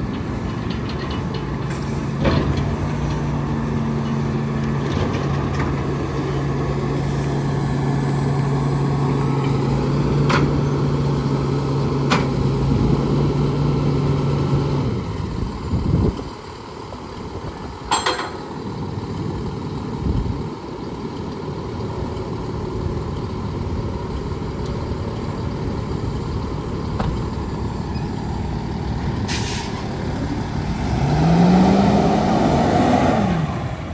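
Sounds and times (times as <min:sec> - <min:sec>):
truck low hum: 0:00.0 - 0:33.9
air release hisses: 0:29.3 - 0:29.9.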